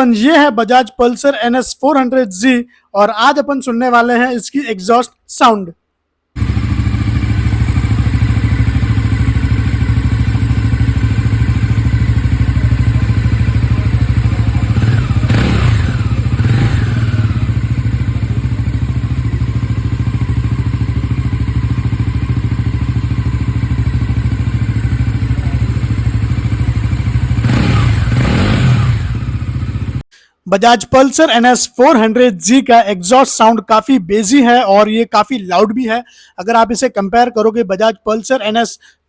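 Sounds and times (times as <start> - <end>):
engine revving: 6.4 - 22.8, 23.5 - 30.0
motorcycle engine idling: 6.4 - 30.0.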